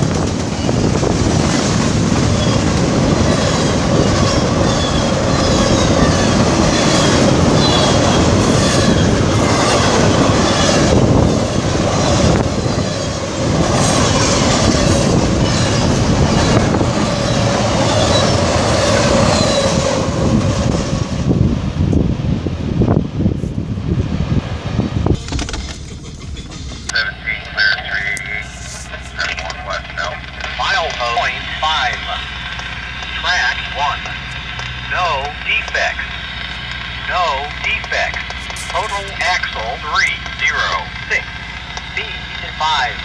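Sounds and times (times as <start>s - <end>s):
train wheels rolling on rails: 0.0s - 43.0s
high-pitched wheel squeal: 3.5s - 10.8s, 17.2s - 19.8s, 25.6s - 27.0s
wheels clickety-clack over joints: 37.8s - 43.0s.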